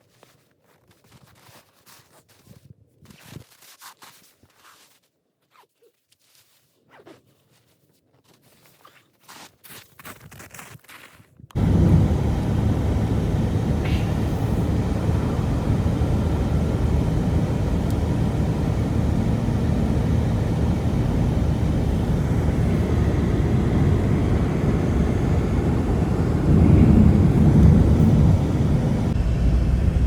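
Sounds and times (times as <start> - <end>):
loud low rumble: 11.6 - 30.0.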